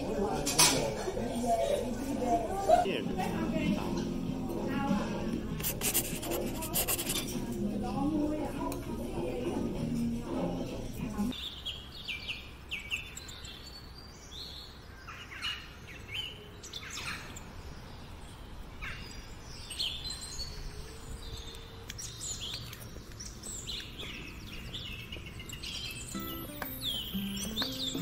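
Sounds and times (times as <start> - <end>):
songbirds chirping: 7.9 - 28.0.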